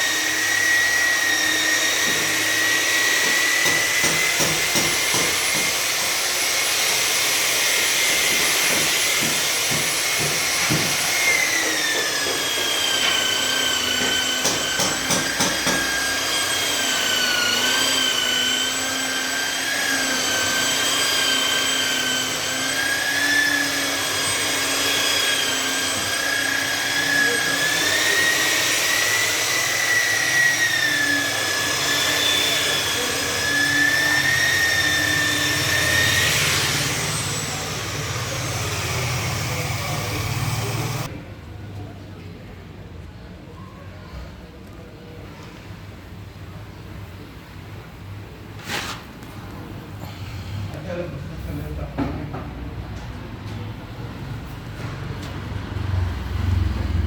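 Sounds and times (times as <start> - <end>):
power tool high whine: 0.0 - 41.1.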